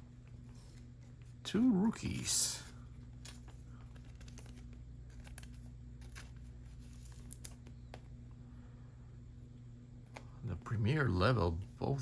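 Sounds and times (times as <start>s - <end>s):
steady low hum: 0.0s - 12.0s
trading cards rustling: 0.1s - 8.4s.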